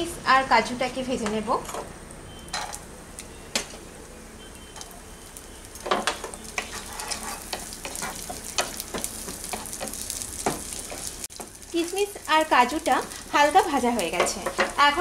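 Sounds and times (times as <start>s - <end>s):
nuts sizzling in a pan: 1.6s - 15.0s
wooden spatula clicking and scraping: 6.2s - 11.5s.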